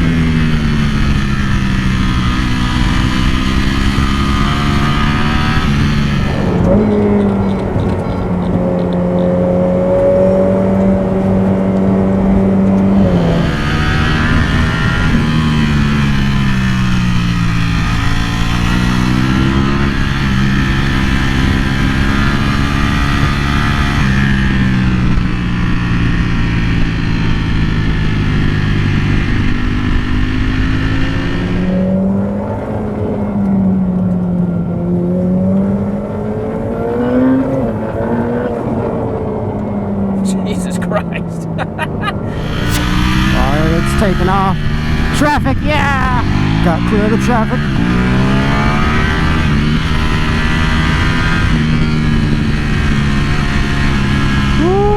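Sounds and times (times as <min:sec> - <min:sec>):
motorcycle engine rising and falling: 0:00.0 - 0:27.8.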